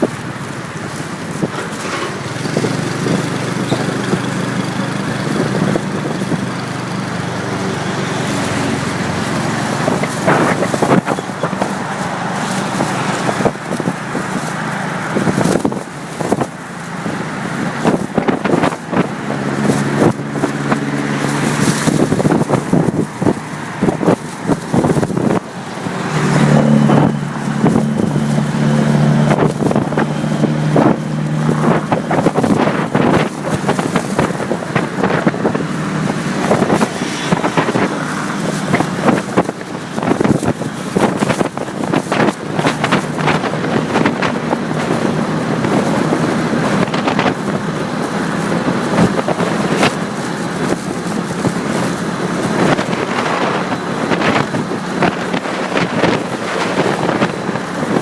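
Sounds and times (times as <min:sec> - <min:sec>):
motorcycle engine running: 0:00.0 - 0:58.0
wind buffeting microphone: 0:00.0 - 0:58.0.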